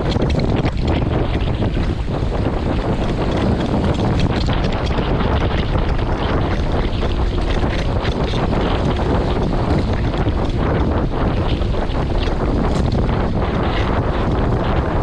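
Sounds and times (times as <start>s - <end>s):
water splashing along hull: 0.0s - 15.0s
wind buffeting microphone: 0.0s - 15.0s.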